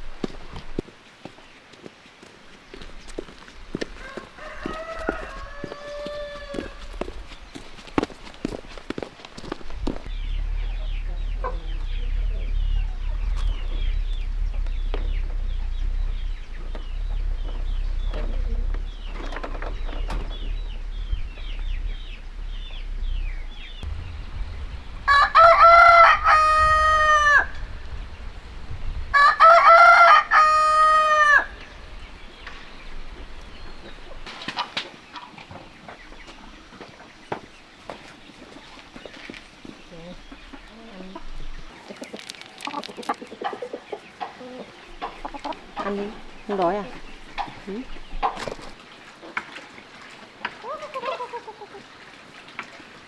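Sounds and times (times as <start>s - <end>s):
rooster crowing: 3.9s - 7.2s, 24.9s - 27.9s, 29.1s - 32.0s
low rumble: 9.4s - 34.3s.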